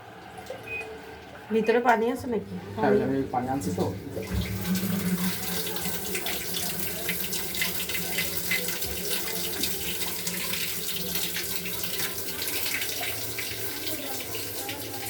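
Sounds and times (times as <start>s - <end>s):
water splashing into washing machine: 3.7s - 15.0s.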